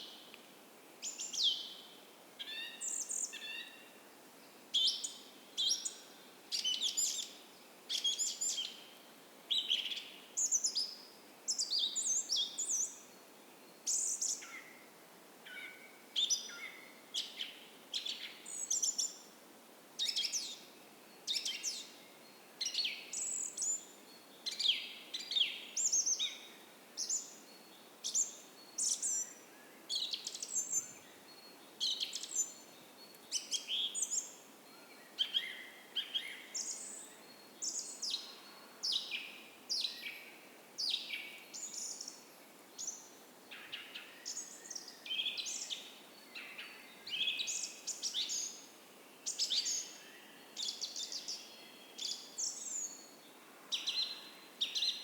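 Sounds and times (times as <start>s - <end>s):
gentle creek hiss: 0.0s - 55.0s
songbirds chirping and twittering: 0.0s - 55.0s.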